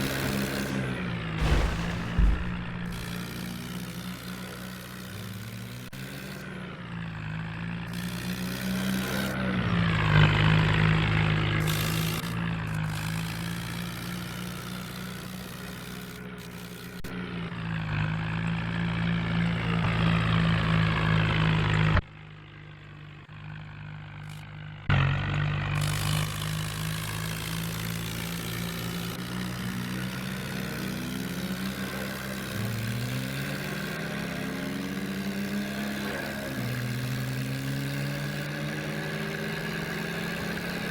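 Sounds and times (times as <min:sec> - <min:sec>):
tractor engine droning: 0:00.0 - 0:06.2.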